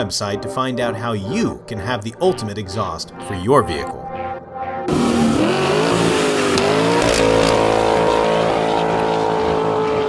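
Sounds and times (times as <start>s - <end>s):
truck engine revving: 4.9s - 10.0s.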